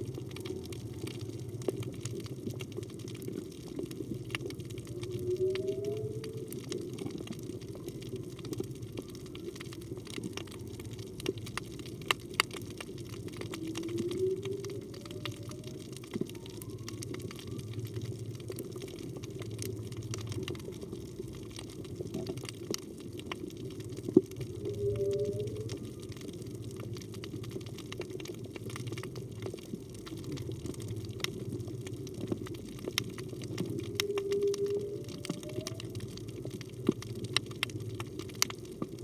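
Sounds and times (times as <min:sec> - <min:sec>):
low underwater wash: 0:00.0 - 0:39.0
whale song calls: 0:04.6 - 0:11.0, 0:13.2 - 0:21.1, 0:24.2 - 0:26.7, 0:33.4 - 0:36.8
fainter higher whale call: 0:04.8 - 0:10.4, 0:13.4 - 0:18.2, 0:24.3 - 0:26.5, 0:33.6 - 0:36.6.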